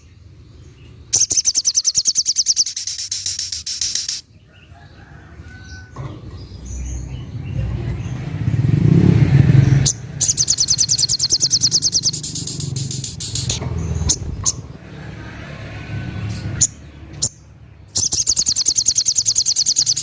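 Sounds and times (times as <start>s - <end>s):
passing vehicle rumble: 0.0s - 20.0s
faint high chirps: 1.1s - 4.3s, 9.9s - 14.6s, 18.0s - 20.0s
bird fast high trill: 1.2s - 4.3s, 9.8s - 14.6s, 18.0s - 20.0s.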